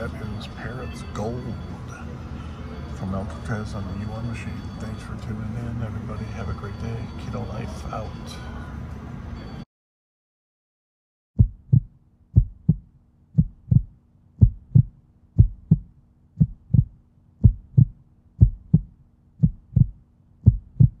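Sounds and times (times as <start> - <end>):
faint hum: 11.4 - 21.0
heartbeat thumps: 11.4 - 21.0.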